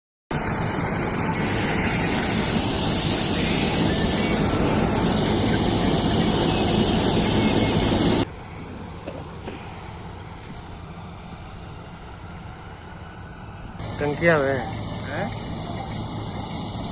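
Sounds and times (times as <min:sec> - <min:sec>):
combine harvester running: 0:00.3 - 0:16.9.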